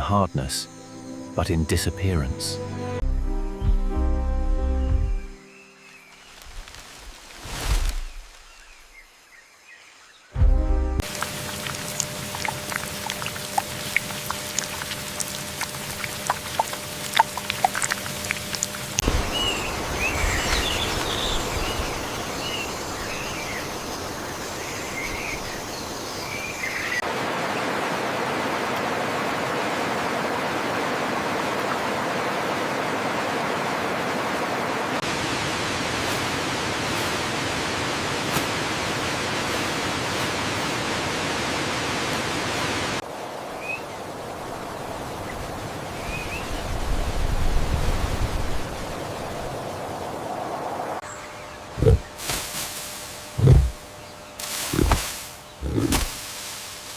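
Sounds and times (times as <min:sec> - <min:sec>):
high insect drone: 0:00.0 - 0:02.4, 0:11.0 - 0:27.0
birds chirping: 0:00.0 - 0:06.7, 0:11.0 - 0:27.0, 0:51.0 - 0:52.2, 0:53.2 - 0:56.1
even rushing hiss: 0:51.8 - 0:56.9.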